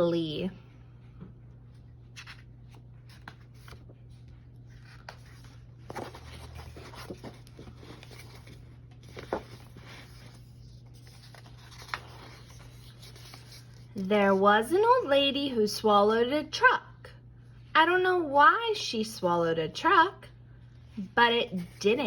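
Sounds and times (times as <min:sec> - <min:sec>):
paper pages rustling: 0:01.6 - 0:14.4.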